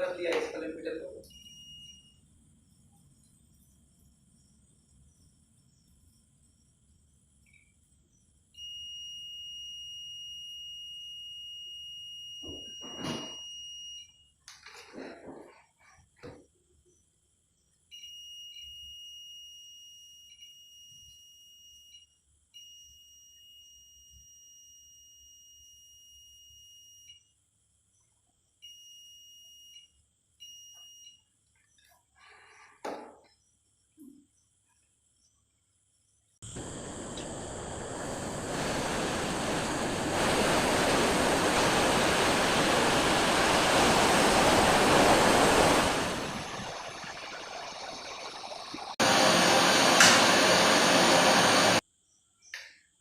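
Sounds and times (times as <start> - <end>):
multimeter continuity beep: 1.2 - 2.2, 8.6 - 14.3, 17.9 - 27.4, 28.6 - 31.9.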